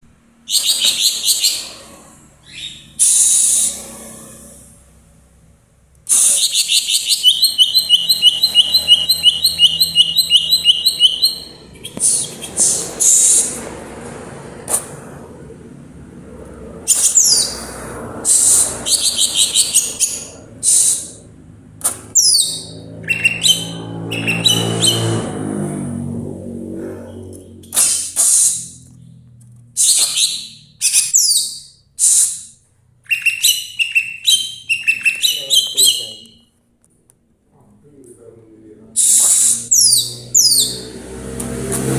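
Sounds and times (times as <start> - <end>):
bird chirping rapidly: 0.4 - 3.8, 6.1 - 13.7, 16.9 - 21.2, 22.1 - 25.4, 29.8 - 36.5, 39.0 - 40.9.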